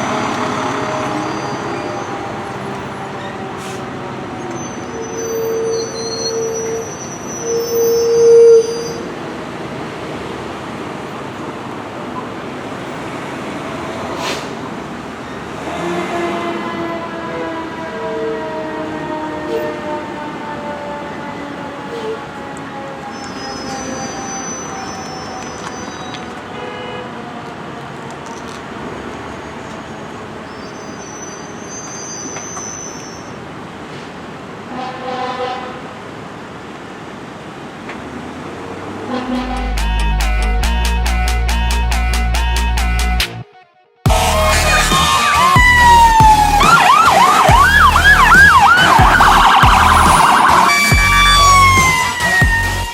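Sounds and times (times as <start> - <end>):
fire engine air horn blast: 0.0 - 4.0, 15.6 - 25.6, 26.5 - 27.2, 34.7 - 35.8, 39.0 - 39.9
vehicle engine and road noise: 0.0 - 18.0, 18.7 - 43.4, 44.1 - 52.9
street traffic: 0.0 - 52.9
short horn toot: 39.1 - 39.8
siren winding: 44.2 - 52.9.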